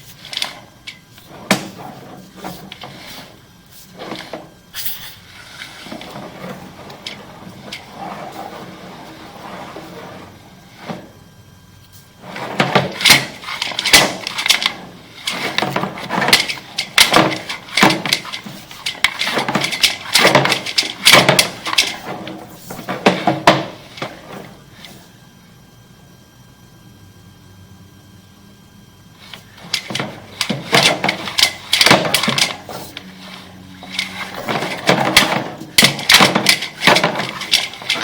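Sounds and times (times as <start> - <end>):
hard knocks and clatters: 12.3 - 24.5, 29.2 - 38.0.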